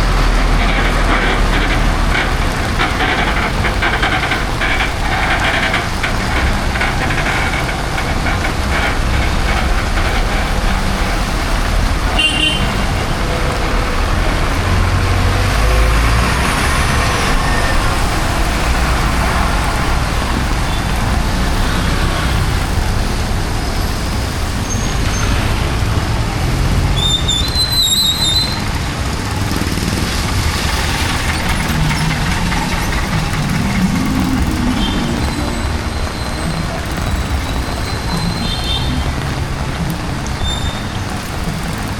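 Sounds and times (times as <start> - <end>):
heavy rain hiss: 0.0 - 41.9
vehicles passing: 0.0 - 41.9
high-pitched squeals: 30.6 - 41.4.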